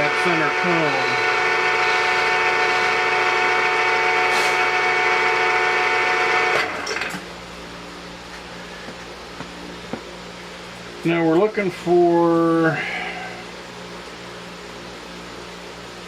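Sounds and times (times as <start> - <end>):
milling machine motor whining: 0.0 - 7.5
low steady hum: 0.0 - 16.0.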